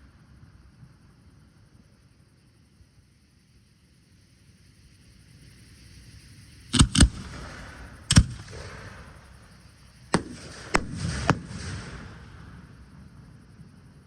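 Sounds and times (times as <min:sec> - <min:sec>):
crackling hissing fireworks tail: 0:00.0 - 0:14.0
fireworks bursting: 0:06.8 - 0:13.3.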